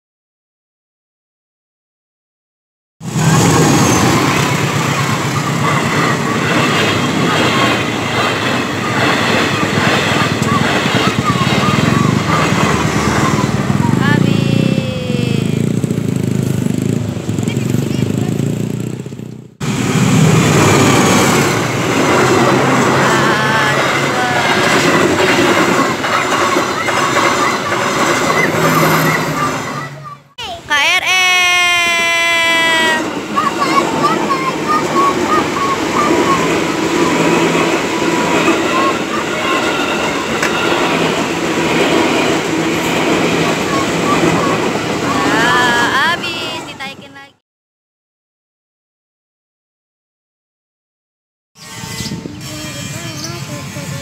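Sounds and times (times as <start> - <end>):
train wheels rumbling and clattering: 3.1 - 30.1, 33.0 - 47.0.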